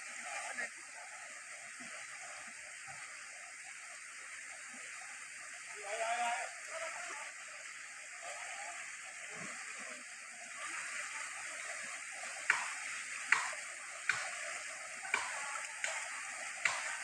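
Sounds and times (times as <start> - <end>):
floodwater rushing: 8.2 - 17.0.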